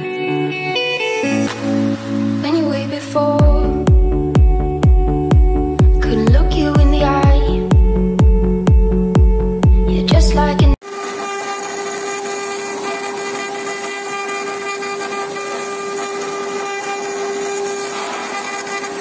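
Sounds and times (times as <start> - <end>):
electronic music with heavy beat: 1.2 - 10.8
router spindle whining: 10.8 - 19.0.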